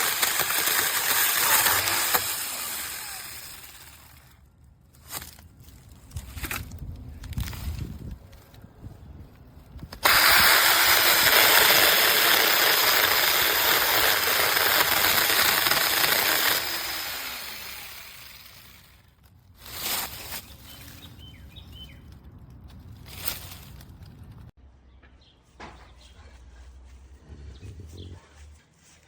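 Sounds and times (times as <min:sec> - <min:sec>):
mini chainsaw electric whine: 0:00.0 - 0:04.4, 0:10.0 - 0:19.0.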